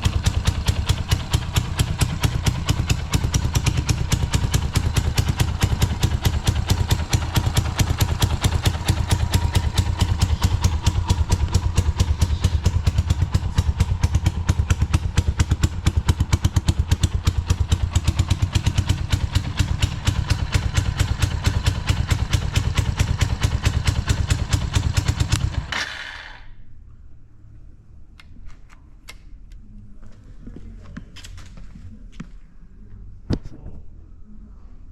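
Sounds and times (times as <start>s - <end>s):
motorcycle engine idling: 0.0s - 26.5s.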